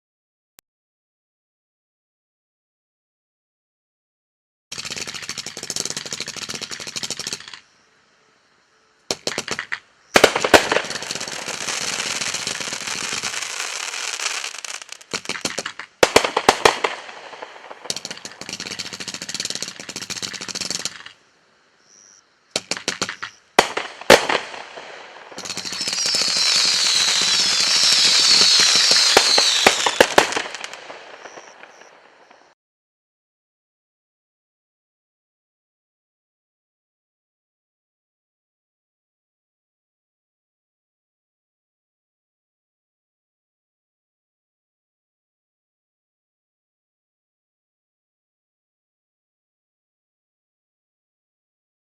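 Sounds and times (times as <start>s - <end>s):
fireworks sharp reports: 9.1s - 21.1s, 22.6s - 32.5s
fireworks dense crackling: 9.1s - 21.2s, 22.6s - 32.5s.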